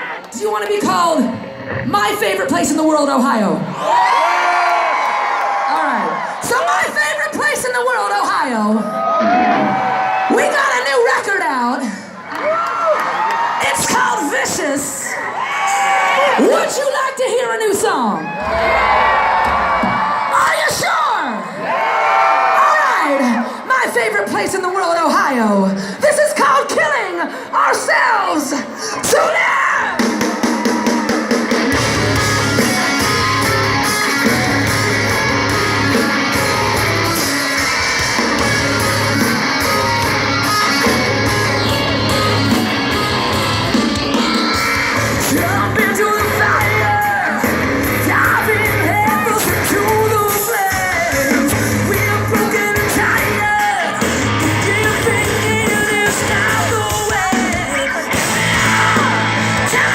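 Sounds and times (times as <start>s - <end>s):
rock band playing: 8.9s - 11.8s, 17.8s - 20.9s, 29.1s - 59.9s
person singing: 39.6s - 59.9s.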